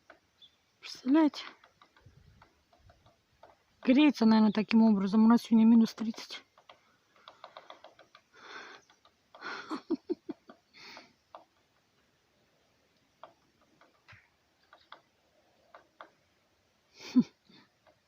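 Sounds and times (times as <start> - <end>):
woodpecker tapping on wood: 0.0 - 16.7, 17.5 - 18.0
rustling: 5.0 - 18.0.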